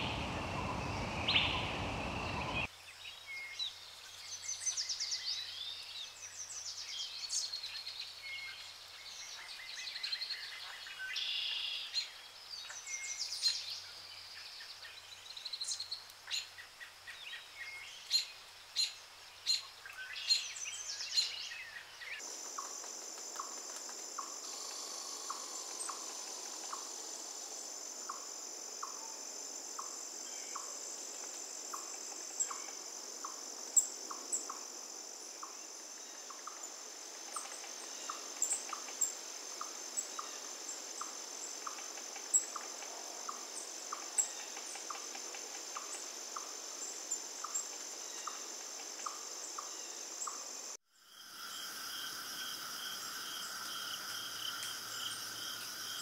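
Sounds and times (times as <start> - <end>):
birds chirping: 0.0 - 2.7
high-pitched insect drone: 22.3 - 36.7, 43.3 - 56.0.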